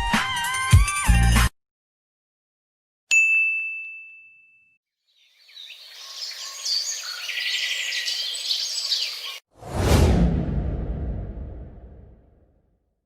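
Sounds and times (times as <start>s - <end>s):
ringing ding: 3.1s - 4.8s
birds chirping: 5.1s - 9.4s
loud deep hit: 9.6s - 12.4s.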